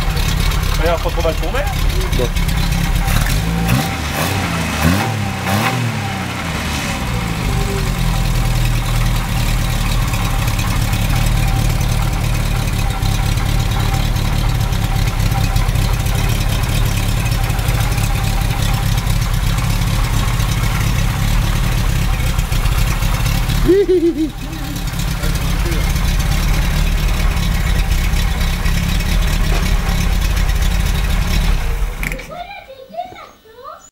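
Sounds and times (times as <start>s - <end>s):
car engine idling: 0.0s - 32.5s.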